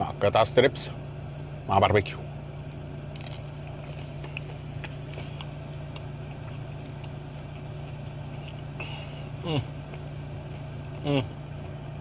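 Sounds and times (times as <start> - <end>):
car idling hum: 0.0 - 12.0
man chewing crispy food: 2.6 - 12.0.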